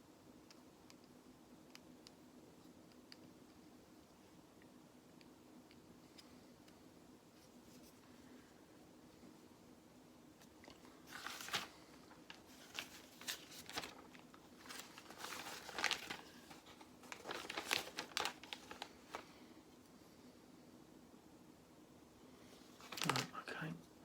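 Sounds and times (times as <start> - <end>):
crinkly rustling: 10.4 - 19.5, 22.5 - 23.7.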